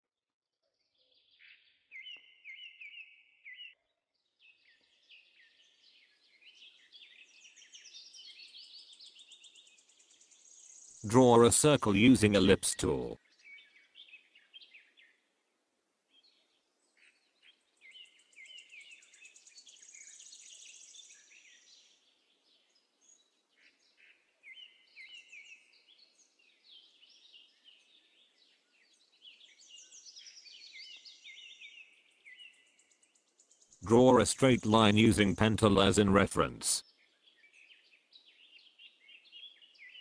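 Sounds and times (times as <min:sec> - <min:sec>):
faint birds chirping: 0:00.7 - 0:40.0.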